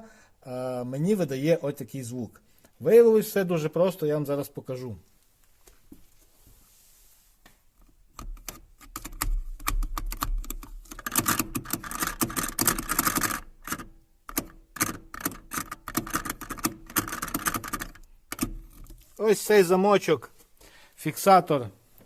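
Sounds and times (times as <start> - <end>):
seat belt buckle rattling: 8.2 - 19.0.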